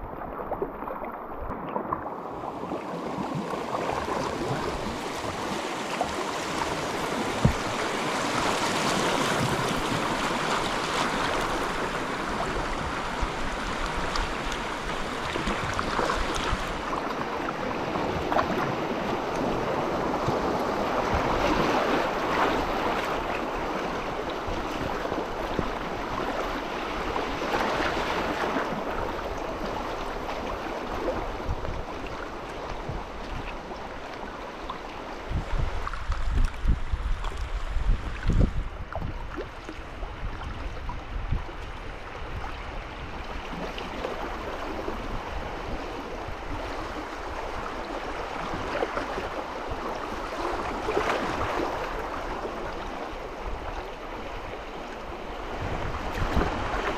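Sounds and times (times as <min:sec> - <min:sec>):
river water rushing: 0:00.0 - 0:38.2.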